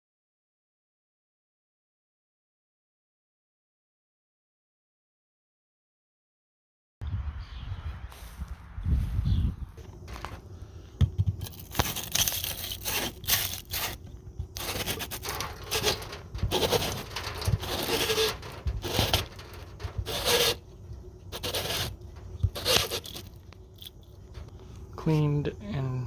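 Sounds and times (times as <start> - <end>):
scraping and rubbing pipe end: 9.8 - 24.9.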